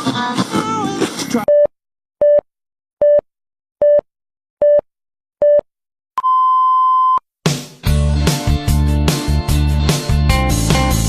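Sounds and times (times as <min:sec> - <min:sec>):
heart monitor beeps: 0:01.5 - 0:02.4, 0:03.0 - 0:03.2, 0:03.8 - 0:07.2.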